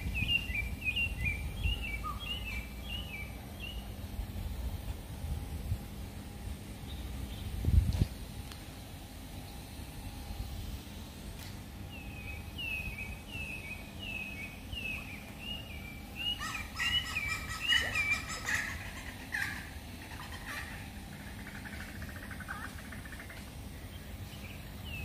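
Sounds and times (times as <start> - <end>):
bird chirping: 0.0 - 3.9, 11.9 - 25.0
low background noise: 0.0 - 25.0.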